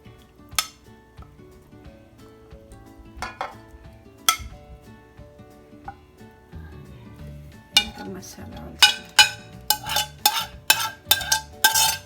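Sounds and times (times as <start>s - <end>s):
background music: 0.0s - 12.0s
spoon knocking against pot: 0.5s - 0.9s, 3.2s - 4.6s, 7.8s - 8.1s, 8.8s - 12.0s.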